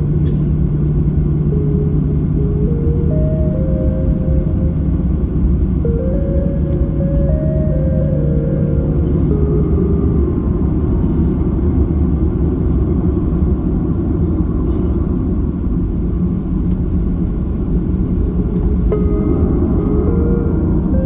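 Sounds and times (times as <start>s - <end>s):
airliner cabin engine drone: 0.0s - 21.0s.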